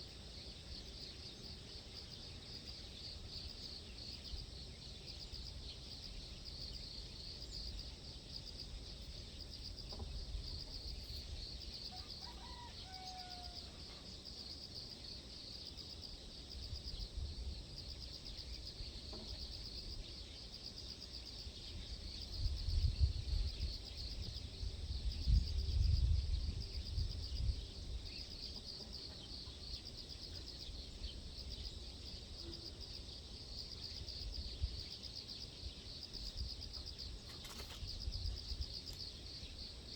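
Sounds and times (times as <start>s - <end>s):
insects chirring: 0.0s - 39.9s
wind gusts on microphone: 22.3s - 28.2s.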